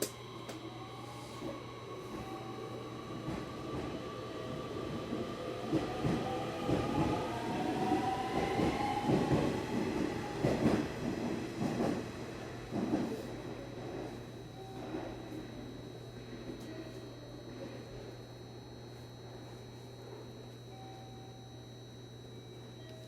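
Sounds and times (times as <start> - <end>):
electric train motor whine: 0.0 - 11.6.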